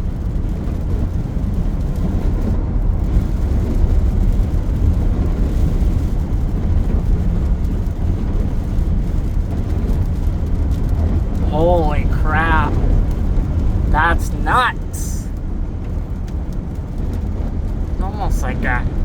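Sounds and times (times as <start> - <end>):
gusty wind buffeting a vehicle: 0.0 - 11.4, 15.3 - 18.0.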